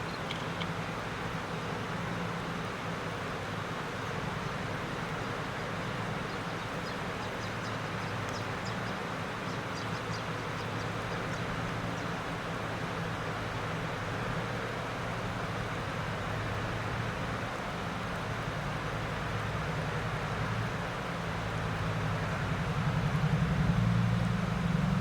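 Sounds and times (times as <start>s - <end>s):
locomotive engine drone: 18.1s - 25.0s.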